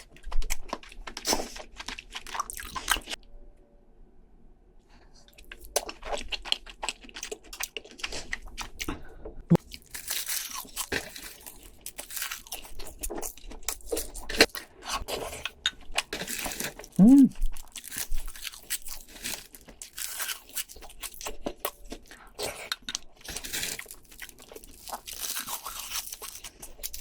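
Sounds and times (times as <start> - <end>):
chewing: 0.0 - 3.2, 5.3 - 27.0
crab shells cracking and crunching: 0.0 - 3.2, 9.6 - 27.0.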